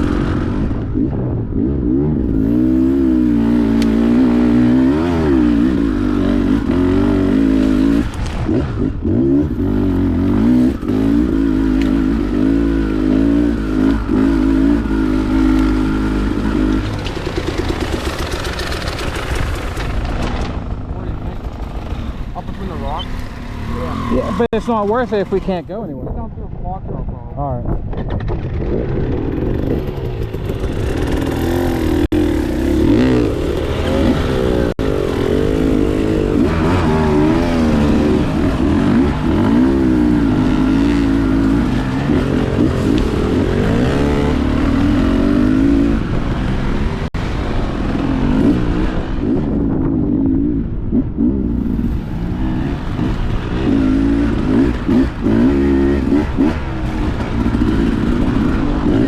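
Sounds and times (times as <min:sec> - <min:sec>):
dirt bike engine revving: 0:00.0 - 0:25.8, 0:28.4 - 0:59.0.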